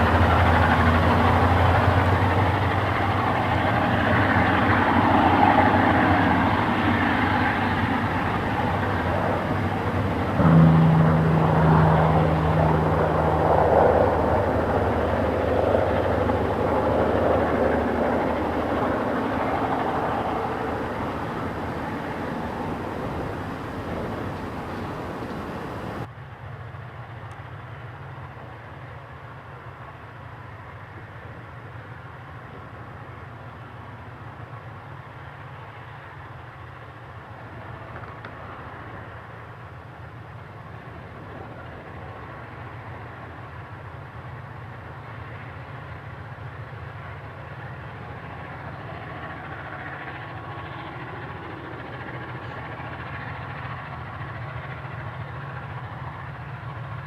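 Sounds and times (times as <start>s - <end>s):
diesel locomotive engine drone: 0.0s - 26.1s, 29.5s - 57.0s
higher engine note: 0.0s - 26.1s.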